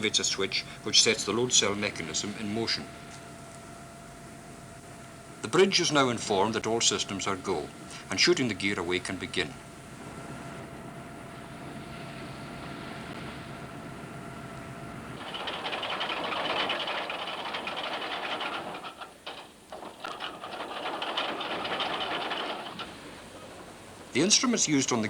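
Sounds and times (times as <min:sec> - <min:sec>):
engine hum with faint whine: 0:00.0 - 0:25.0
rushing hiss with fast rattling: 0:15.2 - 0:25.0.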